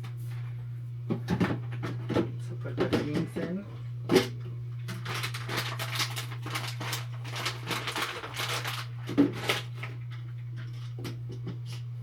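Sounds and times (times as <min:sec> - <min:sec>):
bag crinkling and rustling: 0:04.9 - 0:10.2.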